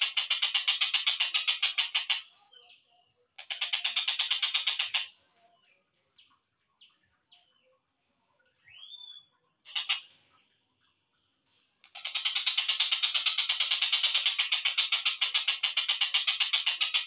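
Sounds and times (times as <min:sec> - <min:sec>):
kingfisher chattering rattle: 0:00.0 - 0:02.3, 0:03.4 - 0:05.1, 0:09.7 - 0:10.1, 0:11.8 - 0:17.0.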